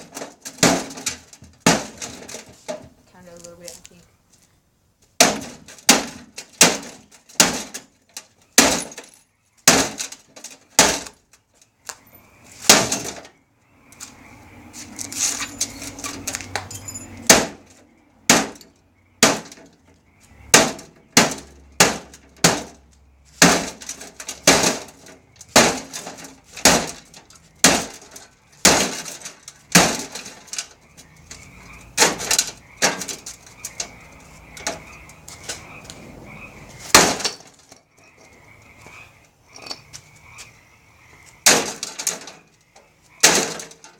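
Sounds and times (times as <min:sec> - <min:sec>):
rattling: 0:00.0 - 0:03.0, 0:15.0 - 0:35.8, 0:41.4 - 0:43.9.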